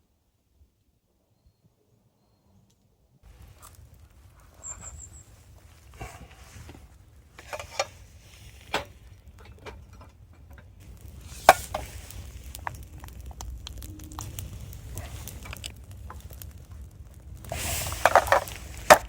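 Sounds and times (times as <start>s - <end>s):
low rumble: 3.3s - 19.0s
cooking gear clicks and knocks: 5.9s - 19.0s.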